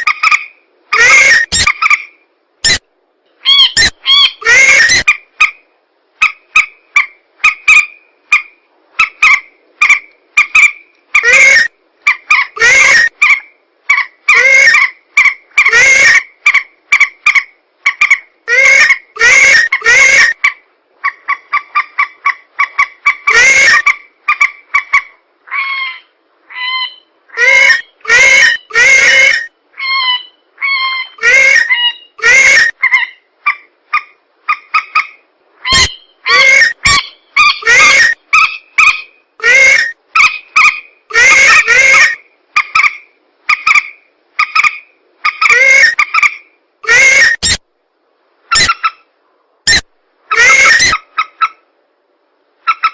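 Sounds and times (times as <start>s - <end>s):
harsh bird screeching calls: 0.0s - 2.8s, 3.4s - 5.2s, 7.0s - 11.7s, 12.3s - 16.2s, 18.5s - 20.4s, 23.1s - 24.0s, 25.5s - 33.2s, 34.6s - 43.0s, 43.6s - 47.6s, 48.5s - 49.0s, 49.7s - 51.6s.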